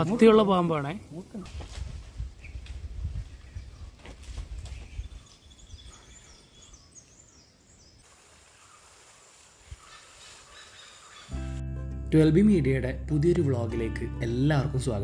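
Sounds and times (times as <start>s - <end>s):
small birds chirping: 2.4s - 11.4s.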